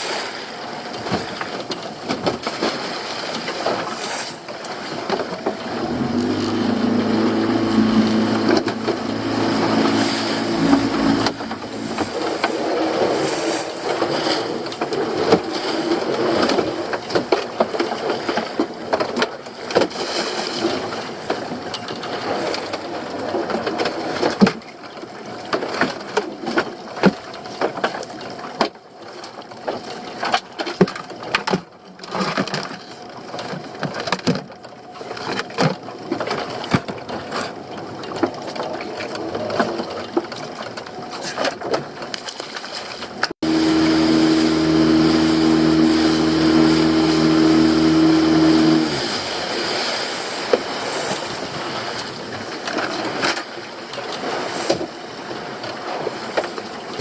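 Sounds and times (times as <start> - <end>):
water noise: 0.0 - 57.0
wind: 0.0 - 57.0
motor running: 5.5 - 13.7, 43.4 - 49.5.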